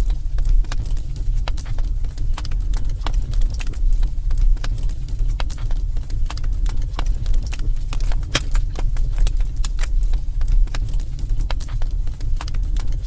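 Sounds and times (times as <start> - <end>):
burning logs crackling and popping: 0.0 - 13.0
flames rumbling: 0.0 - 13.0.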